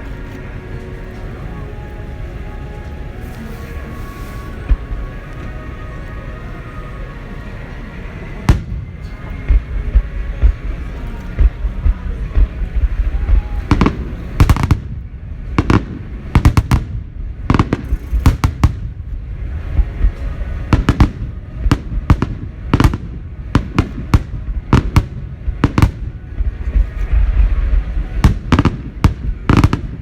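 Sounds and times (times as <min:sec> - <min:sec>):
low rumble: 0:00.0 - 0:30.0
fireworks bangs: 0:02.8 - 0:05.6, 0:08.4 - 0:30.0.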